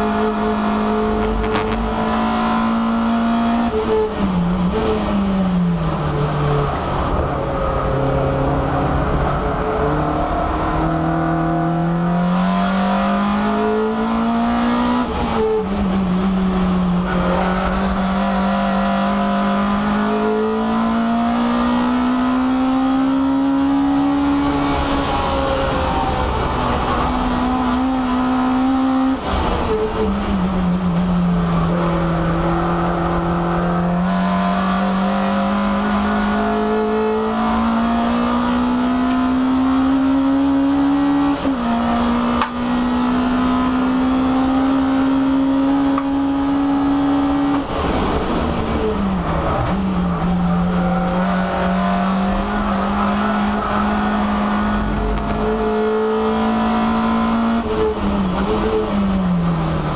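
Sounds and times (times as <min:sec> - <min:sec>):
race car engine from inside cabin: 0:00.0 - 0:59.9.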